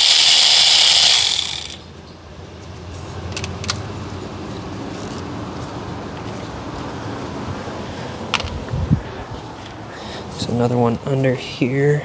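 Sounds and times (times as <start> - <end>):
power tool whirring on bolt: 0.0 - 1.8.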